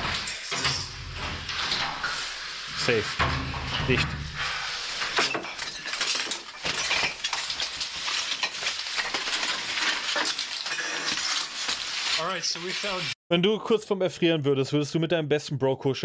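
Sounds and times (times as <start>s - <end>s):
rubble rattling and clinking: 2.8s - 12.2s.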